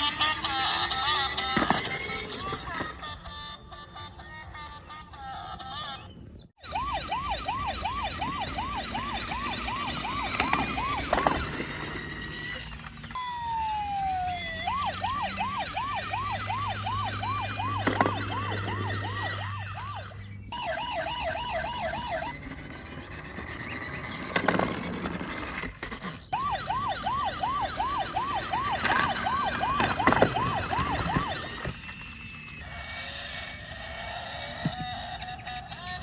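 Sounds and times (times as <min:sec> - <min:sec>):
toy police siren: 0:00.0 - 0:06.0, 0:06.6 - 0:36.0.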